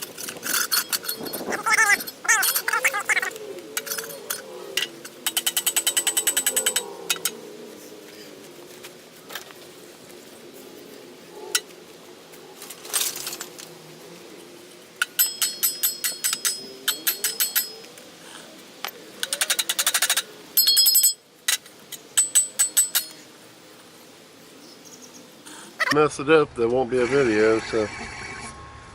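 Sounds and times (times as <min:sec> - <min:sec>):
ratcheting tool clicking: 0:05.2 - 0:07.4.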